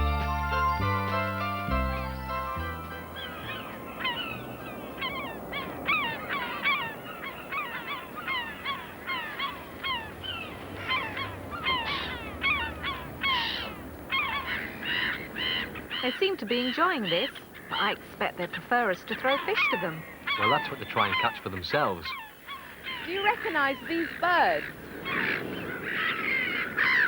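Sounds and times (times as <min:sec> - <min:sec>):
gulls squawking: 0:00.0 - 0:27.0.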